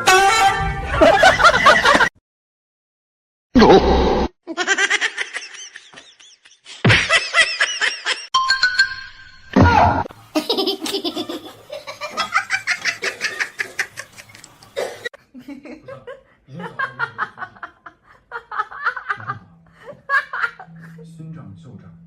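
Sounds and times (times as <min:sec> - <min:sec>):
person laughing heartily: 0:01.0 - 0:02.1, 0:04.5 - 0:08.3, 0:10.3 - 0:14.5, 0:15.2 - 0:21.0.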